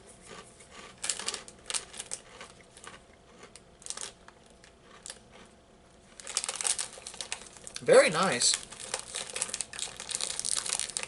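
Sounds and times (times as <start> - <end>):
breadsticks being crunched: 0.3 - 5.5, 6.2 - 11.0.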